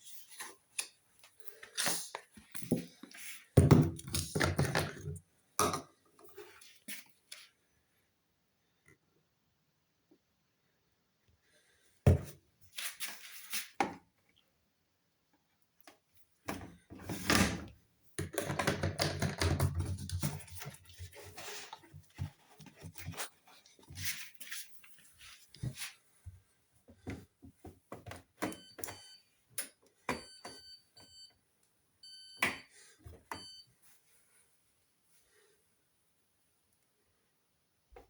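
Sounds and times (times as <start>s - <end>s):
washing machine panel beeping: 28.5s - 29.2s, 30.1s - 31.3s, 32.0s - 32.7s, 33.3s - 33.7s.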